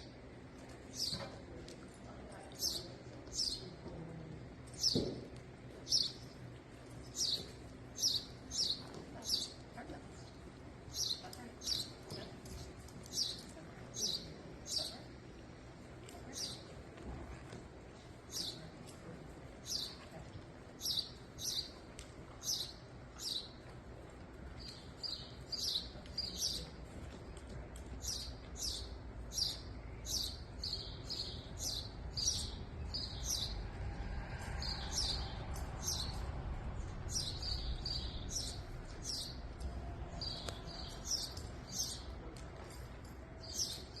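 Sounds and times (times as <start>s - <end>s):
low steady rumble: 0.0s - 44.0s
small bird chirping: 28.0s - 33.6s.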